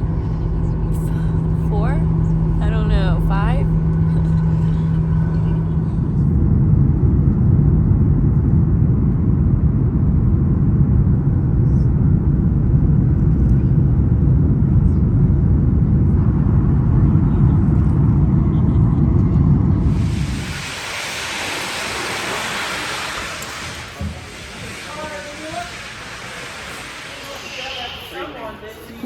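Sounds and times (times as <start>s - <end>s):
vehicle cabin rumble: 0.0s - 10.1s.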